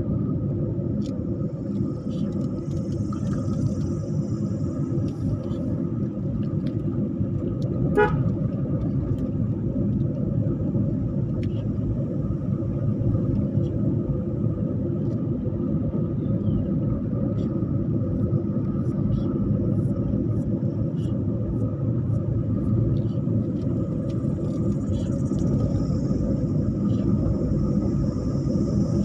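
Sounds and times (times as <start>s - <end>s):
vehicle road rumble: 0.0s - 29.0s
short horn toot: 8.0s - 8.3s.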